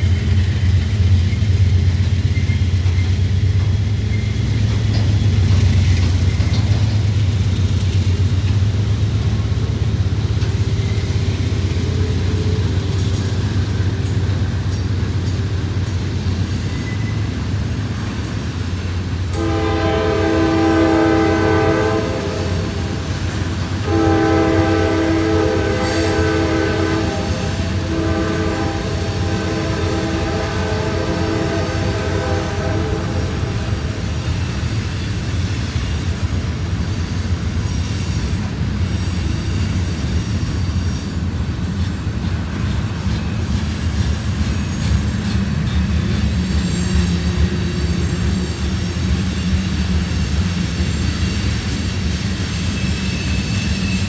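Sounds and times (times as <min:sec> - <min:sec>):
freight train wheels rumbling: 0:00.0 - 0:54.0
locomotive air horn: 0:19.3 - 0:34.1.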